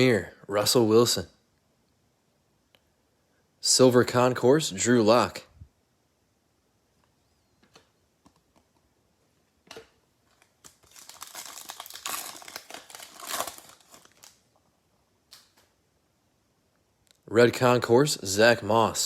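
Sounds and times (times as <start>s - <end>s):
foil wrapper crinkling and tearing: 10.3s - 14.4s.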